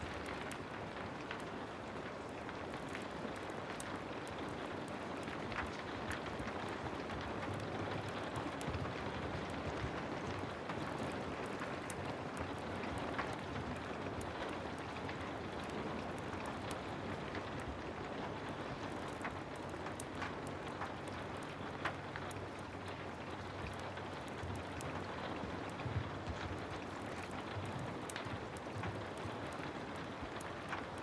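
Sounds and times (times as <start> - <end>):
heavy rain falling: 0.0 - 31.0
sharp ticks and crackles: 0.0 - 31.0.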